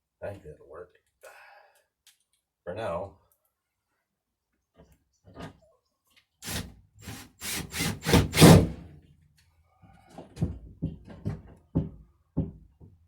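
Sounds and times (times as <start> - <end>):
wooden door scraping frame: 6.5 - 8.8.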